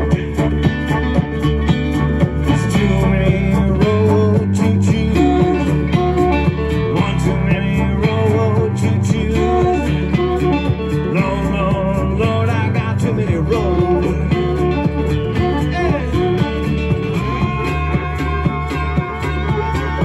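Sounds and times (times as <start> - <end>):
blues band playing: 0.0 - 20.0
electric guitar bent notes: 0.0 - 20.0.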